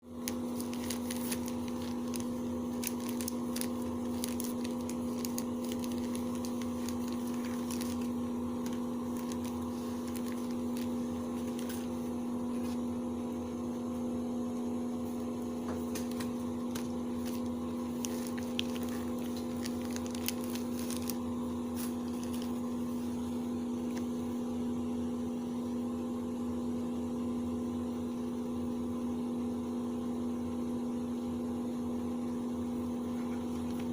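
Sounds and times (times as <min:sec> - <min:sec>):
electrical hum: 0:00.0 - 0:33.9
packaging clicks and rustles: 0:00.1 - 0:12.0, 0:15.9 - 0:22.8.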